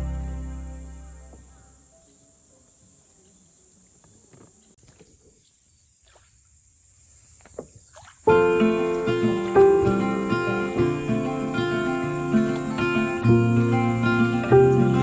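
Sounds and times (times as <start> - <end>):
acoustic guitar music: 0.0 - 1.9, 8.3 - 15.0.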